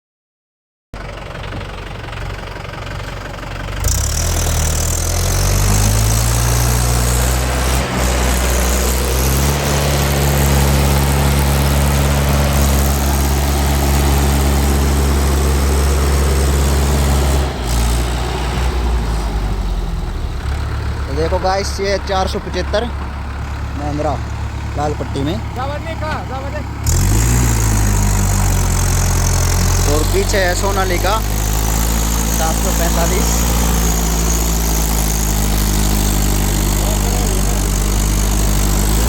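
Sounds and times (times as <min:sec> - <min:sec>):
tractor diesel engine revving: 0:01.0 - 0:39.0.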